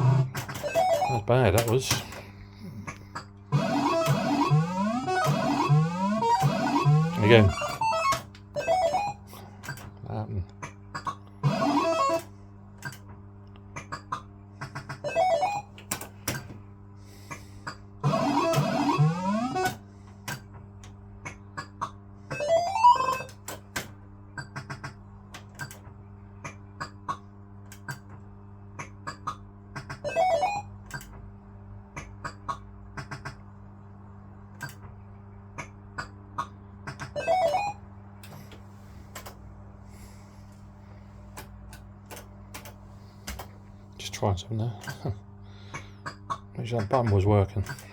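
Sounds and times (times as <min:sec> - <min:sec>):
fruit machine rising bleeps: 0:00.0 - 0:01.3, 0:03.5 - 0:09.3, 0:15.0 - 0:15.7, 0:18.0 - 0:19.8, 0:30.1 - 0:30.7, 0:37.2 - 0:37.9
electrical hum: 0:00.0 - 0:47.9.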